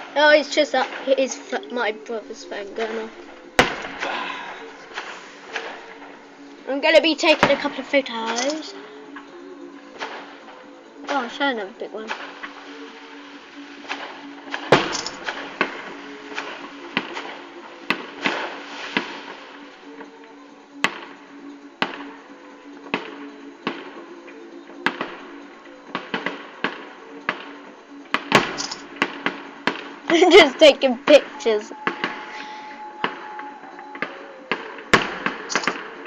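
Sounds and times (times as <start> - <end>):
fireworks bangs and cracks: 0.7 - 6.2, 11.1 - 19.8, 25.9 - 36.0.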